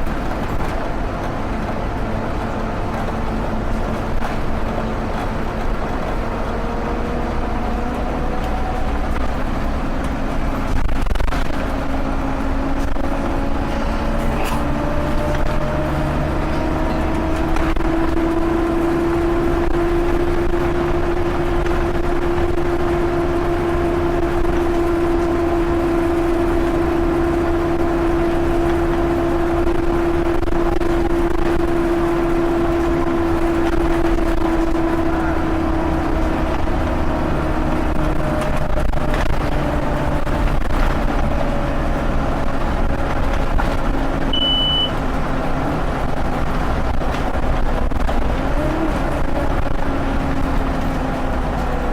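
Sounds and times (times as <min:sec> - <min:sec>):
bus drivetrain whine: 0:00.0 - 0:51.9
short high beep: 0:44.3 - 0:45.0.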